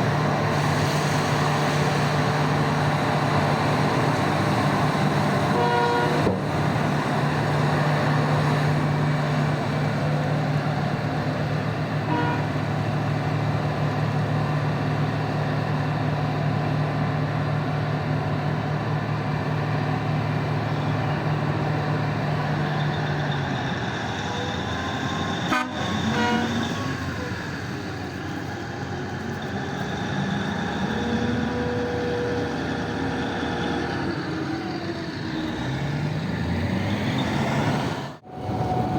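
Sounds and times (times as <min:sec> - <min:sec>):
heavy diesel machinery revving: 0:00.0 - 0:38.9
short horn toots: 0:05.6 - 0:06.3, 0:12.1 - 0:12.6, 0:25.5 - 0:26.7.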